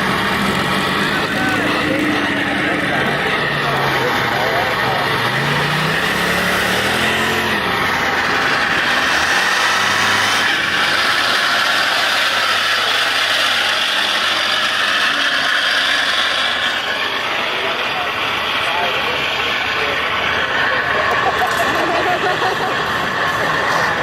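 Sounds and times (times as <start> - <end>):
engine pitch dropping: 0.0 - 24.0
loud background din: 0.0 - 24.0
vehicle engines running: 0.0 - 24.0.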